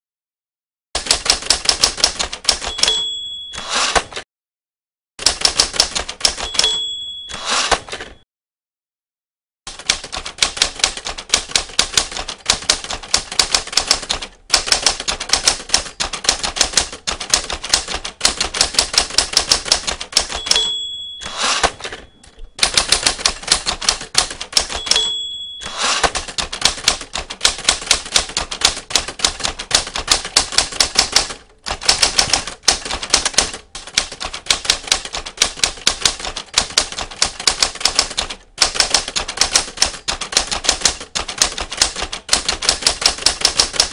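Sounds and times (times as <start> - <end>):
typewriter keys clacking: 1.0 - 4.2, 5.2 - 8.2, 9.7 - 43.9
typewriter bell ding: 2.4 - 4.2, 5.8 - 8.2, 19.2 - 28.4.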